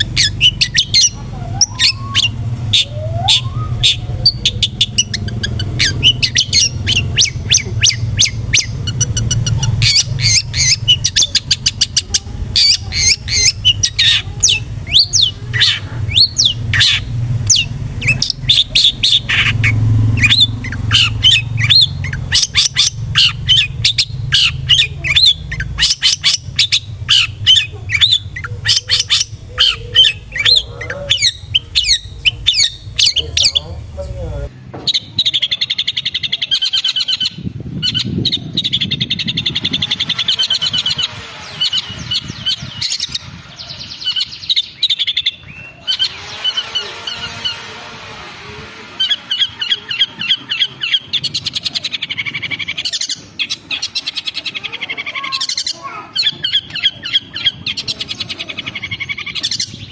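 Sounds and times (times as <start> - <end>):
low rumble: 0.0 - 34.5
shrike singing: 0.0 - 59.9.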